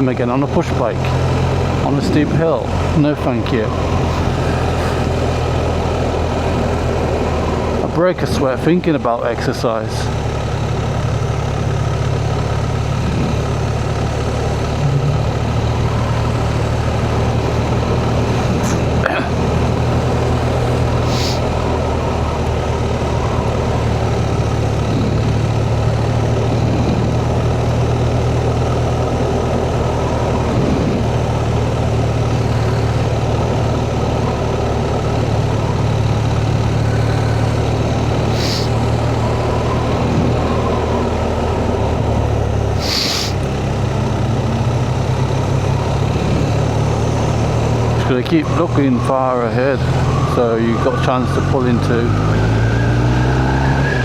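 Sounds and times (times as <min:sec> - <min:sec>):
motorcycle engine running: 0:00.0 - 0:54.0
road and wind noise: 0:00.0 - 0:54.0
brief hissing bursts: 0:21.1 - 0:21.4, 0:38.3 - 0:38.8, 0:42.8 - 0:43.4.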